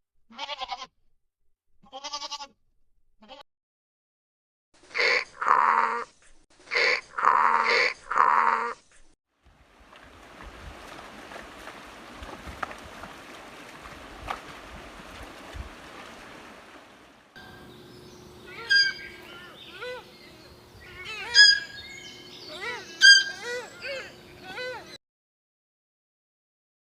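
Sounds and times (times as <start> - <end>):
low steady hum: 9.7 - 24.9
animal calls rising and falling: 18.4 - 20.1, 20.8 - 21.8, 22.5 - 24.9.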